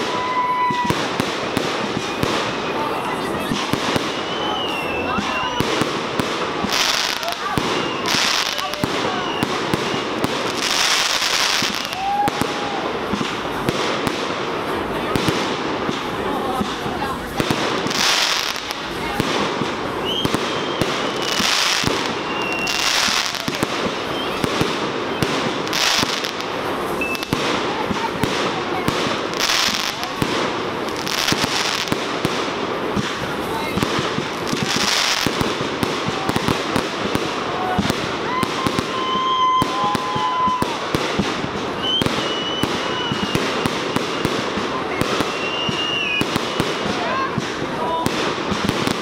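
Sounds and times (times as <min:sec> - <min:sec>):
fireworks bangs and crackles: 0:00.0 - 0:49.0
fireworks hissing bursts: 0:00.0 - 0:49.0
faint short whistles: 0:04.1 - 0:05.6, 0:20.0 - 0:21.4, 0:22.2 - 0:22.8, 0:24.1 - 0:24.4, 0:27.0 - 0:27.3, 0:41.8 - 0:44.3, 0:45.2 - 0:46.6.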